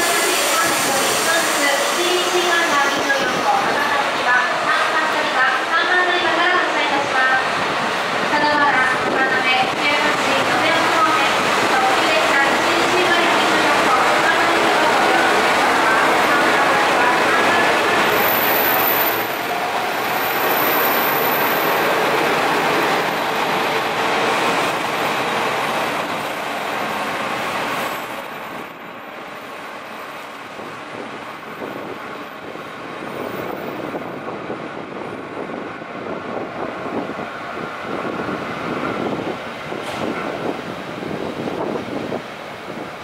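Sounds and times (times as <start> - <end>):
diesel railcar wheel and engine noise: 0.0 - 43.0.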